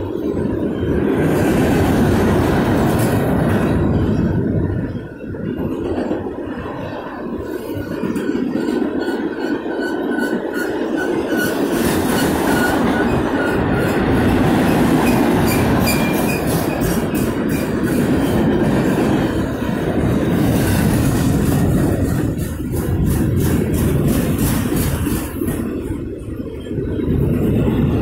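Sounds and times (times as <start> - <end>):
train wheels rumbling on rail: 0.0 - 28.0
wheels clicking over rail joints: 0.0 - 28.0
high wheel squeals: 7.7 - 17.8.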